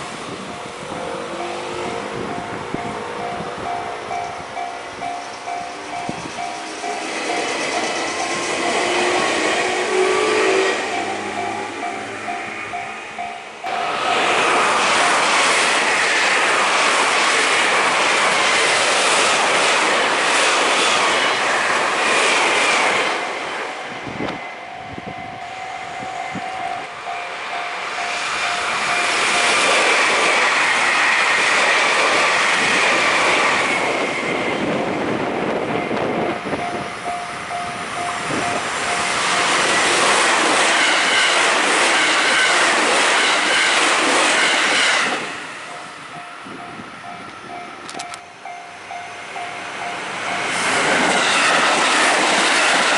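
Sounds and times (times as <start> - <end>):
trains passing: 0.0 - 52.9
level-crossing bell ringing: 0.5 - 15.4, 23.2 - 29.7, 35.6 - 39.7, 45.6 - 50.7.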